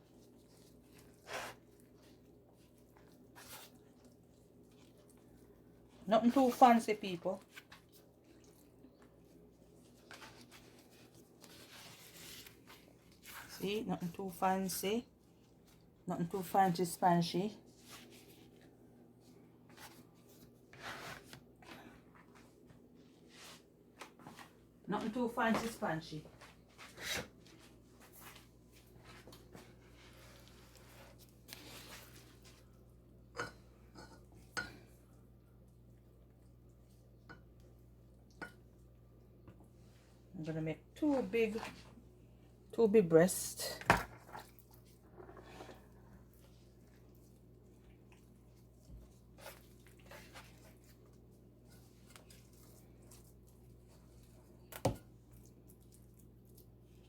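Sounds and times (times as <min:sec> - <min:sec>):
soft squishy rustles: 0:00.0 - 0:14.1, 0:15.0 - 0:16.1, 0:17.5 - 0:33.2, 0:44.1 - 0:57.0
low steady hum: 0:00.0 - 0:57.0.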